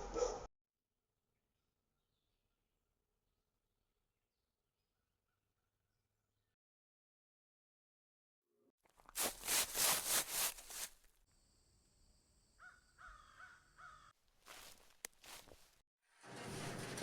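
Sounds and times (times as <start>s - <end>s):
bird cawing harshly: 12.6s - 14.1s.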